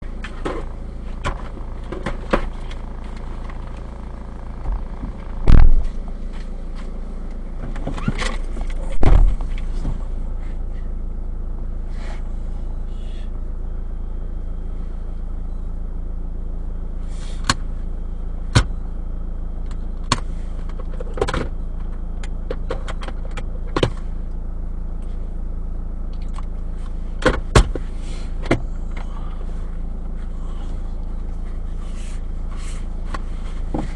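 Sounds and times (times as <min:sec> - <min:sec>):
car engine and road hum: 0:00.0 - 0:33.9
loud thumps: 0:04.6 - 0:06.0, 0:08.9 - 0:10.0.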